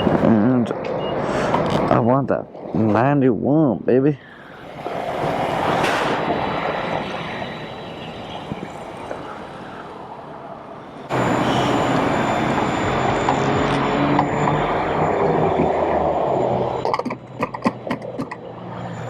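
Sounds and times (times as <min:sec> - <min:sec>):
rushing vehicle noise: 0:00.0 - 0:03.0, 0:04.3 - 0:19.0
engine hum: 0:04.3 - 0:19.0
wind noise: 0:04.6 - 0:19.0.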